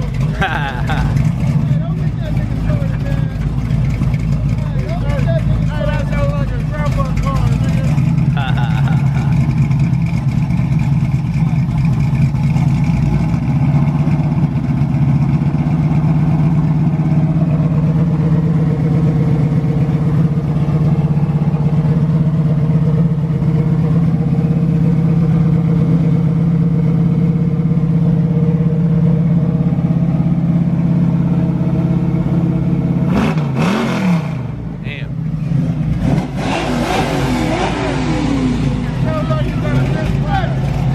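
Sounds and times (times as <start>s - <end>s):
car engine running at low revs: 0.0s - 40.9s.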